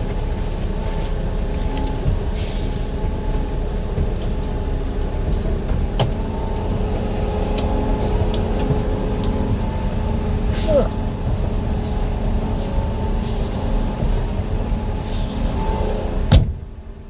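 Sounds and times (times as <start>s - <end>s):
bus engine running: 0.0s - 17.0s.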